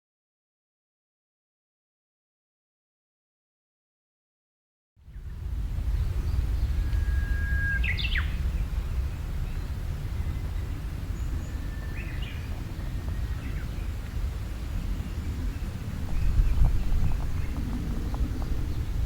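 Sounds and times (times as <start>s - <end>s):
low background rumble: 5.1s - 19.0s
birds calling: 5.2s - 19.0s.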